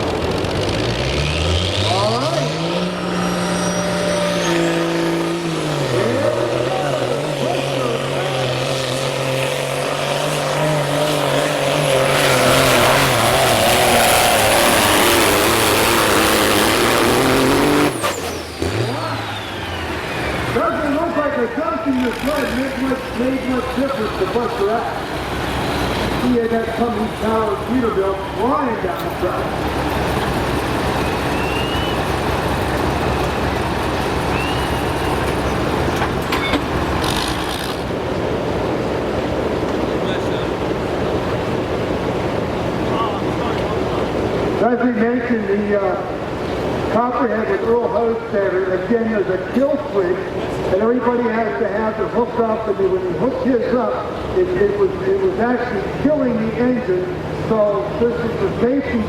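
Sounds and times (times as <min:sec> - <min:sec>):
diesel truck engine under load: 0:00.0 - 0:59.0
high whistle: 0:03.4 - 0:04.8, 0:31.0 - 0:32.1, 0:34.3 - 0:35.0.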